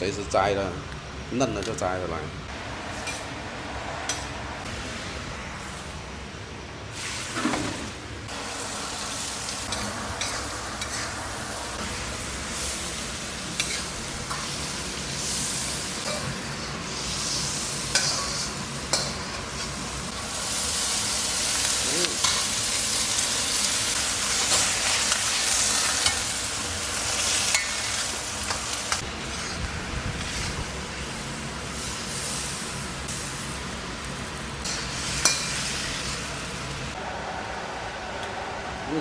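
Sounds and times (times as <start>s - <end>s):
food sizzling in a pan: 7.0s - 37.0s.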